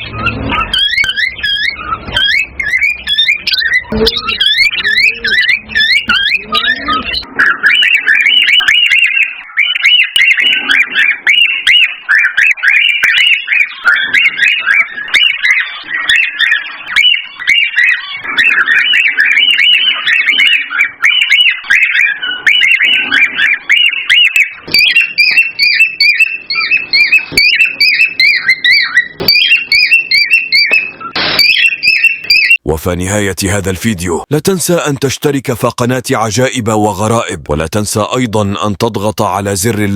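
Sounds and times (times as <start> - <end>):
cockatiels chirping and whistling: 0.0 - 32.6.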